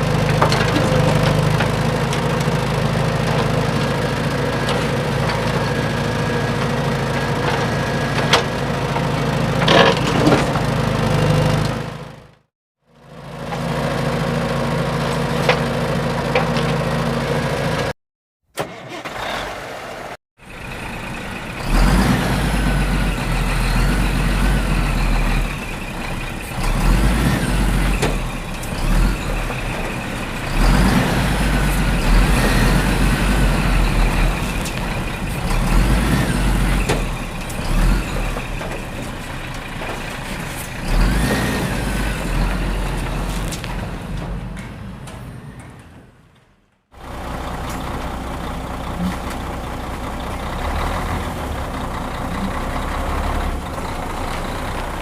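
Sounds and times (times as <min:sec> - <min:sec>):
truck engine revving: 0:00.0 - 0:12.5, 0:18.7 - 0:46.4, 0:47.0 - 0:55.0.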